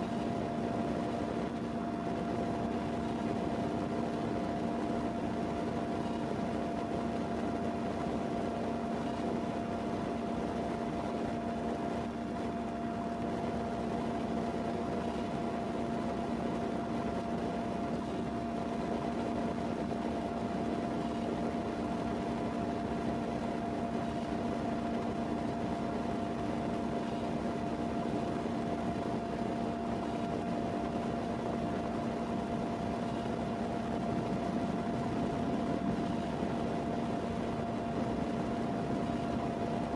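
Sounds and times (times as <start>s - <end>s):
machine hum: 0.0s - 39.9s.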